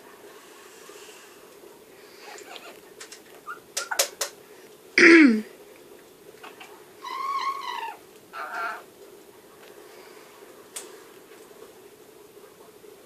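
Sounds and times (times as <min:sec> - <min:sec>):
parrot squawk: 0:06.4 - 0:08.9
parrot wavering call: 0:07.0 - 0:08.9.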